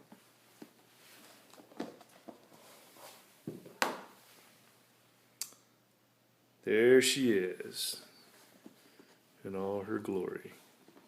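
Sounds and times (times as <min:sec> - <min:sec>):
soft rustles: 0:00.0 - 0:04.9, 0:08.1 - 0:11.0.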